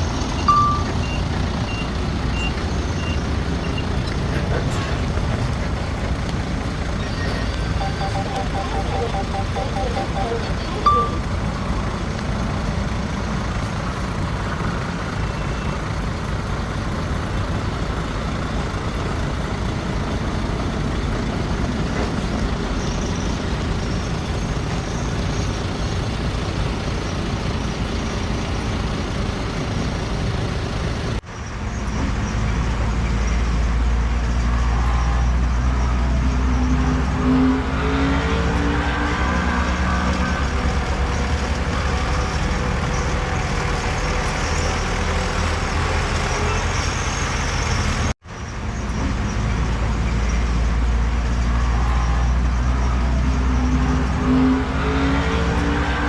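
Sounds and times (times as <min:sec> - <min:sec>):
heavy diesel engines running: 0:00.0 - 0:56.0
deep engine note shifting pitch: 0:07.8 - 0:11.7.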